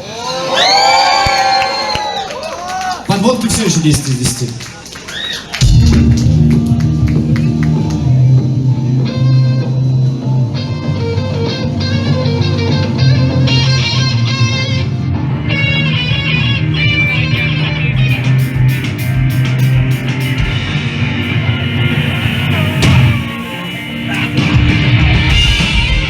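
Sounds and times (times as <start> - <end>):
live punk band playing: 5.6 - 26.0.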